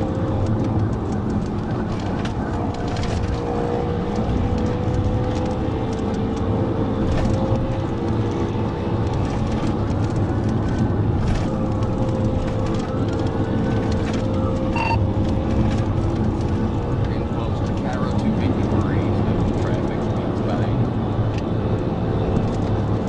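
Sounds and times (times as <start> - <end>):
car engine and road drone: 0.0 - 23.0
short beep: 14.8 - 15.0.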